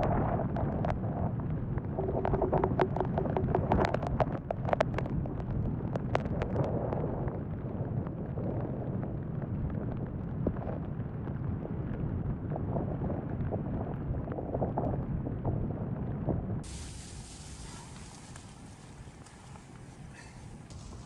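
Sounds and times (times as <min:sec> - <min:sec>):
wind buffeting microphone: 0:00.0 - 0:21.0
tent nylon crackling: 0:16.6 - 0:21.0.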